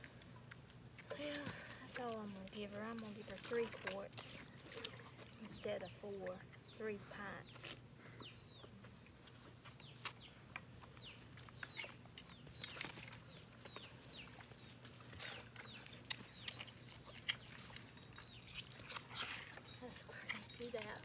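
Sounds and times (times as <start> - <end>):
faint bird chirping: 5.4 - 21.0.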